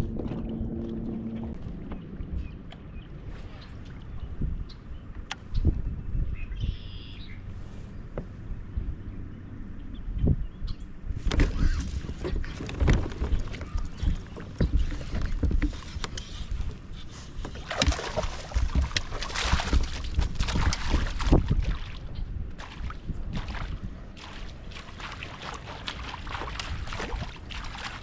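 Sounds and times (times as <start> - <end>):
knocks and clatter on kayak: 0.0 - 2.9, 11.2 - 22.0, 22.6 - 28.0
low rumble: 0.0 - 4.8
water splashing: 17.4 - 28.0.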